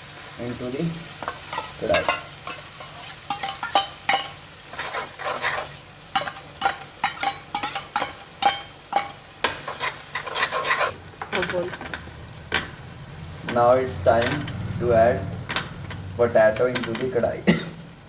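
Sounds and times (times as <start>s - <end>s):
food sizzling: 0.0s - 18.0s
utensil scraping a pan: 1.2s - 12.8s.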